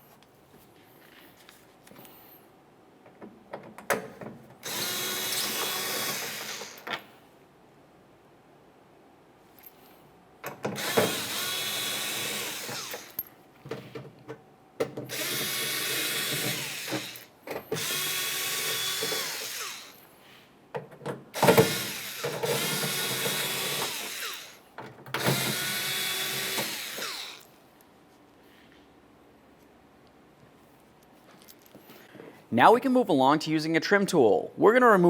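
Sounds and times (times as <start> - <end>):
power driver spinning out screws: 4.6 - 6.9, 10.8 - 13.3, 15.1 - 20.1, 21.4 - 24.6, 25.2 - 27.5.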